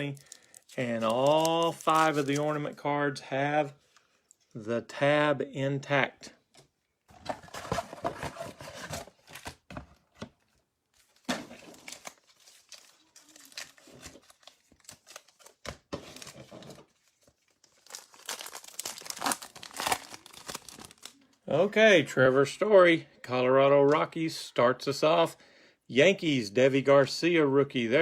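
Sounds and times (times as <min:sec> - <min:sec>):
foil wrapper tearing and crinkling: 0:17.7 - 0:21.1.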